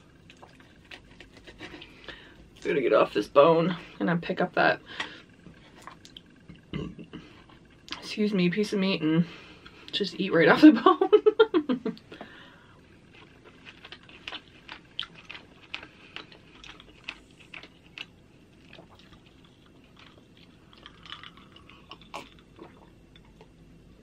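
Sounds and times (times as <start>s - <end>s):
person chewing: 0.0s - 2.6s, 13.0s - 23.6s.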